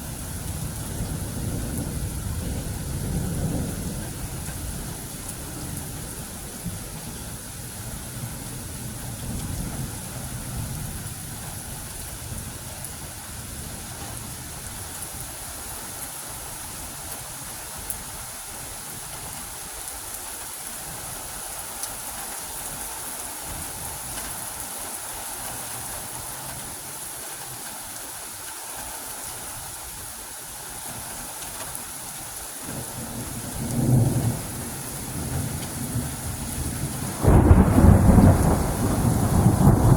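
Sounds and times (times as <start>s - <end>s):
thunder rumbling: 0.0s - 7.1s, 32.7s - 39.9s
steady rain: 0.0s - 39.9s.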